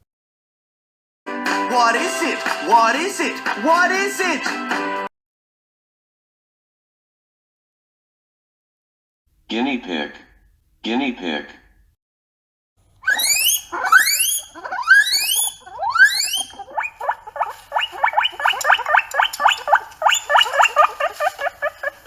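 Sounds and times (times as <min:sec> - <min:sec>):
guinea pig squeaks: 0:13.0 - 0:22.0
guinea pig wheeking: 0:13.0 - 0:22.0.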